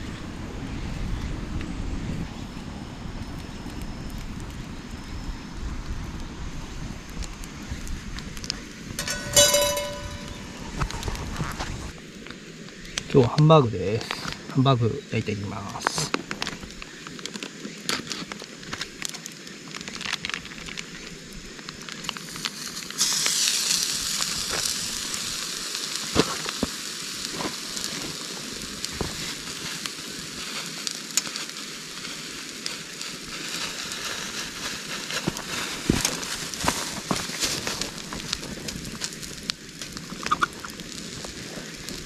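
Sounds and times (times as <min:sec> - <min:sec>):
burning wood crackling: 0:00.0 - 0:42.0
meat sizzling in a pan: 0:15.4 - 0:42.0.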